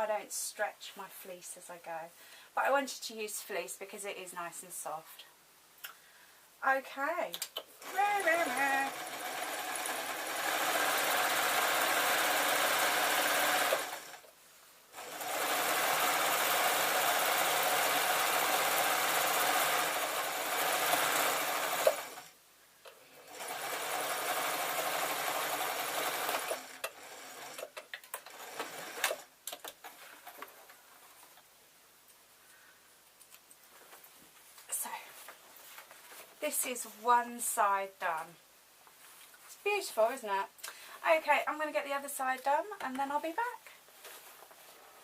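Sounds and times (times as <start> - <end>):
sewing machine stitching: 7.8 - 14.2, 15.0 - 22.4, 23.2 - 29.3.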